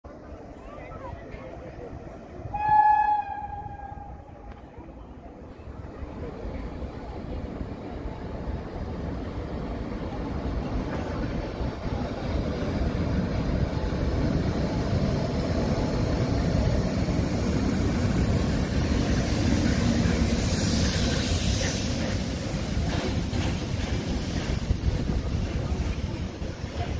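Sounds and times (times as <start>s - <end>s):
freight train wheels rumbling: 0.1s - 26.9s
hiss: 18.3s - 25.3s.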